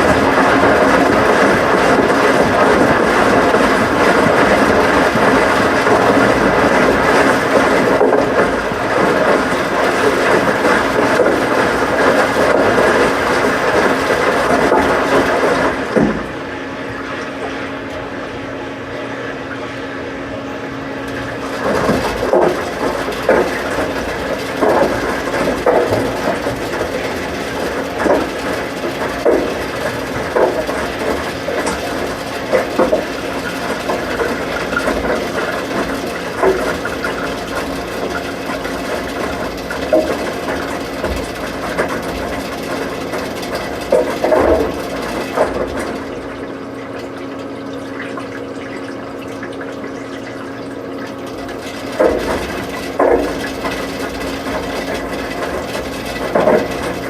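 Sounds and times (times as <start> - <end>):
washing machine knocks: 0.0 - 16.4, 51.8 - 57.0
washing machine hum: 0.0 - 57.0.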